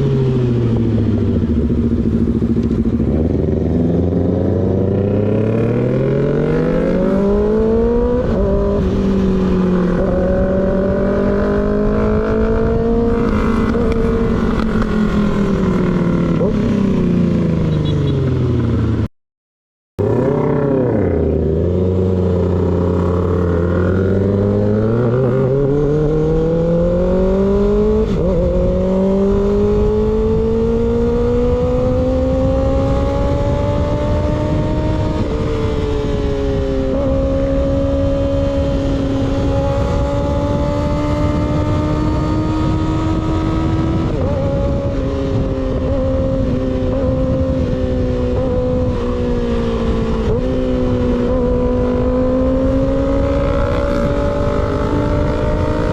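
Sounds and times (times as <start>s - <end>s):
motorcycle engine revving: 0.0s - 19.1s, 20.0s - 55.9s.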